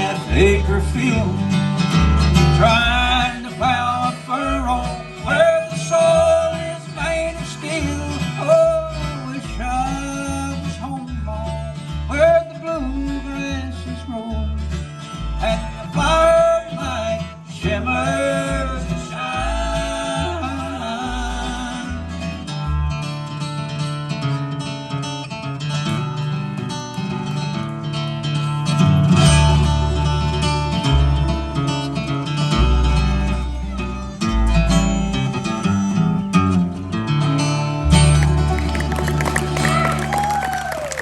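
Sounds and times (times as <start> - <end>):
bluegrass band playing: 0.0 - 12.2, 27.0 - 41.0
walking bass: 0.0 - 23.2, 26.5 - 41.0
acoustic guitar: 0.0 - 41.0.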